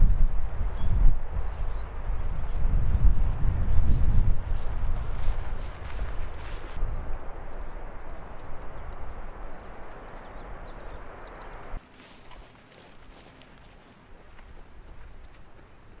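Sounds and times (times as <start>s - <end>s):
small bird chirping: 6.9s - 11.8s.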